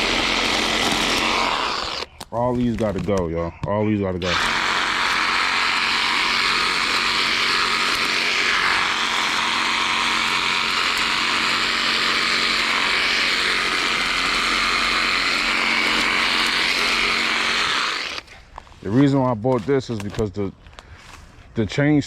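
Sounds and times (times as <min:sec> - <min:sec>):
reciprocating saw cutting branches: 0:00.0 - 0:02.3, 0:04.2 - 0:18.4.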